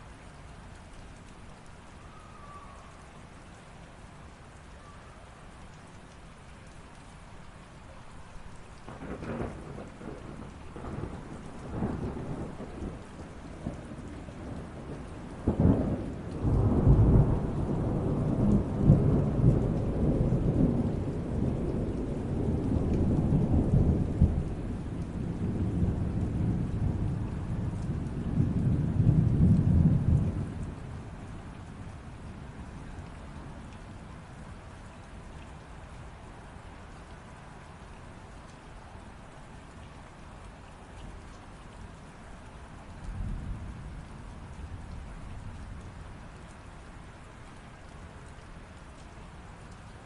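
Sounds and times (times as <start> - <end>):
steady rain: 0.0 - 50.0
rolling thunder rumble: 8.9 - 32.7.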